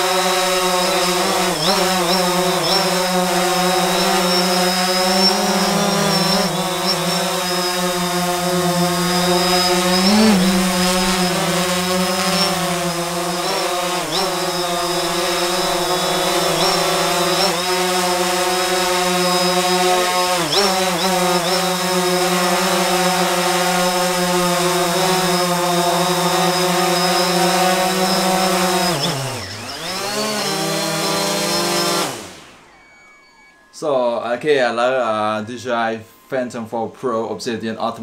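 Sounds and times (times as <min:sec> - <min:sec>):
quadcopter propellers humming: 0:00.0 - 0:34.2.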